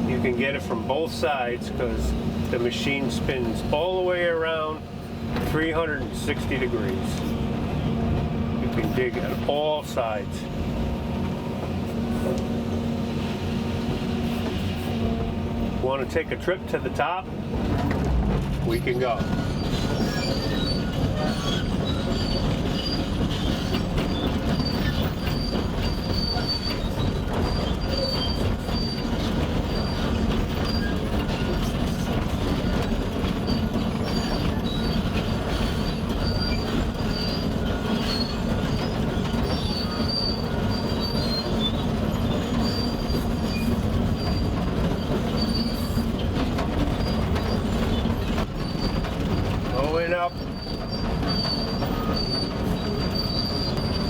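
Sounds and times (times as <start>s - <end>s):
excavator diesel engine under load: 0.0s - 54.0s
high squeal from steel tracks: 2.6s - 7.9s, 18.6s - 54.0s.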